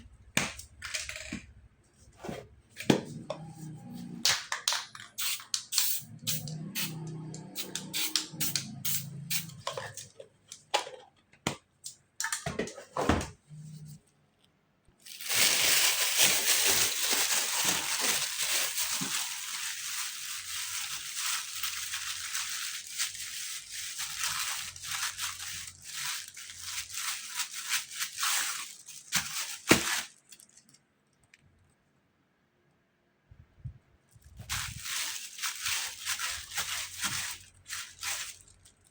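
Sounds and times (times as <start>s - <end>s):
spray paint can hissing: 5.2s - 7.0s, 7.6s - 9.5s.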